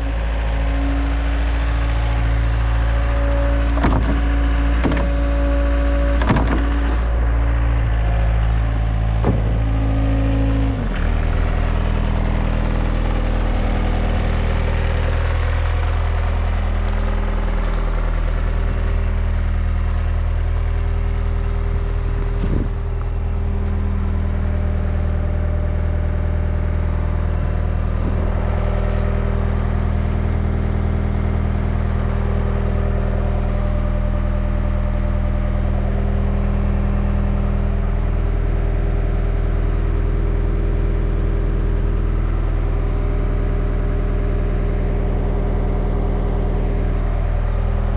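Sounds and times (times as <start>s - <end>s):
diesel engine running: 0.0s - 47.9s
brief knocks: 9.2s - 9.7s.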